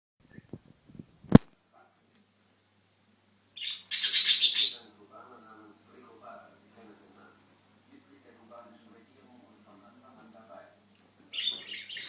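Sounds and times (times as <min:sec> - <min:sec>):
budgerigars chirping: 0:03.6 - 0:04.9, 0:11.3 - 0:12.0.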